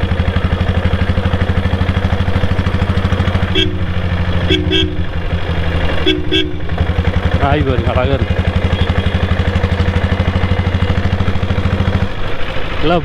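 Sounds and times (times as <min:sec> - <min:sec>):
motorcycle engine idling: 0:00.0 - 0:13.0
horn toots: 0:02.5 - 0:10.9.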